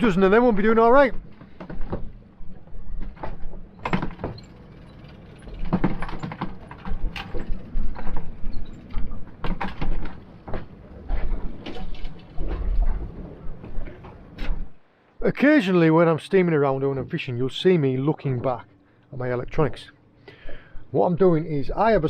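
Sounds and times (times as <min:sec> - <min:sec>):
wind rumble on microphone: 0:05.6 - 0:14.8.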